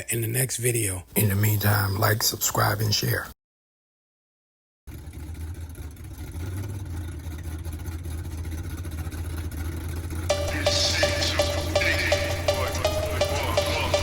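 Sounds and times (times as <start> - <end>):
music beat: 10.3 - 14.0.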